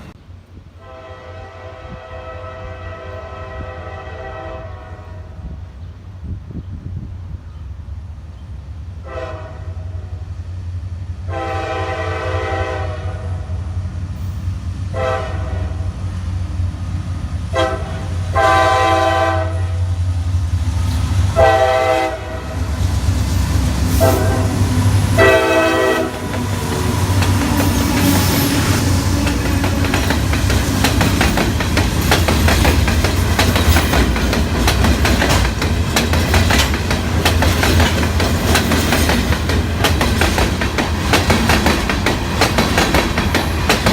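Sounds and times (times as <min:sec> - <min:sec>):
diesel locomotive engine rumble: 0:00.0 - 0:43.9
train rushing past: 0:00.0 - 0:43.9
train air horn blasts: 0:00.8 - 0:05.6, 0:09.0 - 0:10.3, 0:11.2 - 0:13.6, 0:14.9 - 0:16.0, 0:17.5 - 0:20.0, 0:21.3 - 0:22.8, 0:23.9 - 0:29.7
wheels clacking over rail joints: 0:22.6 - 0:43.9.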